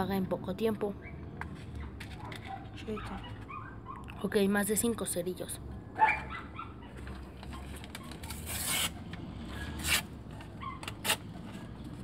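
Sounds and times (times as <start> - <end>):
match scratching on matchbox: 8.0 - 9.0.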